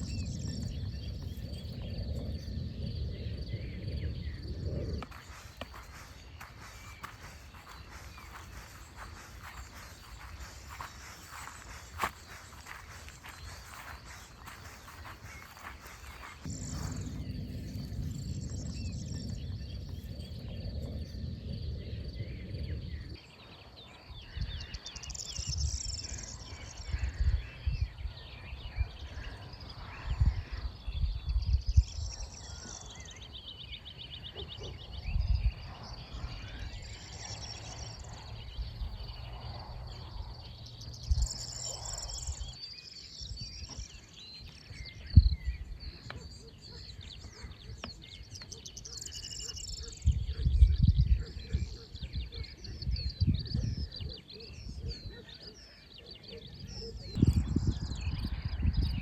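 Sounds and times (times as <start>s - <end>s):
insect trill: 0.0s - 23.0s
wind buffeting microphone: 0.0s - 48.6s, 49.2s - 55.5s, 56.8s - 59.0s
birds singing: 0.0s - 59.0s.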